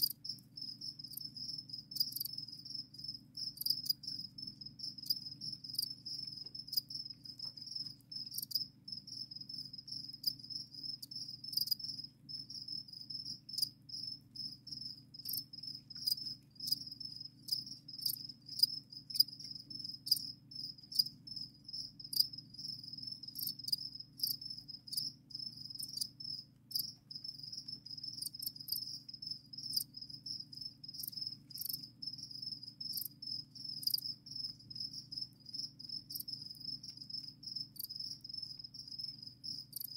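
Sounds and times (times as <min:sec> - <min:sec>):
crickets chirping: 0:00.0 - 0:39.9
faint ticks: 0:05.0 - 0:08.6.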